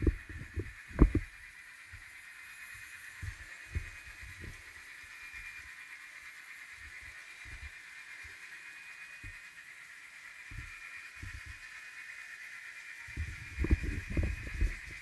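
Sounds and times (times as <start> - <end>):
model train whine: 0.0 - 15.0.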